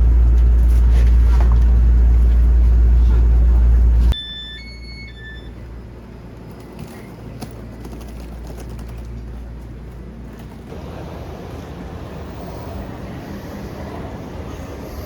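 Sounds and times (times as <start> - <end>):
loud deep rumble: 0.0 - 4.2.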